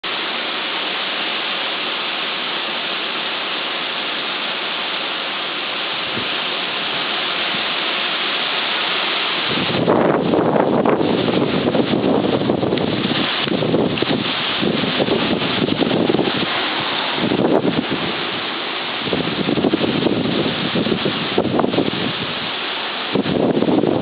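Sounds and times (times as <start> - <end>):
strong wind blowing: 5.6 - 24.0
wind gust buffeting microphone: 5.8 - 24.0.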